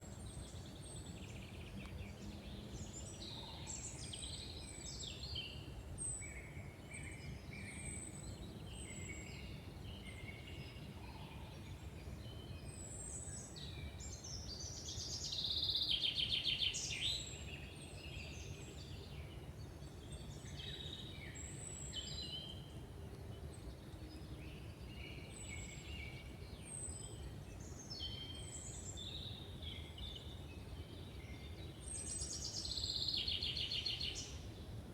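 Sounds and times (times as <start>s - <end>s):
songbirds singing: 0.0s - 34.9s.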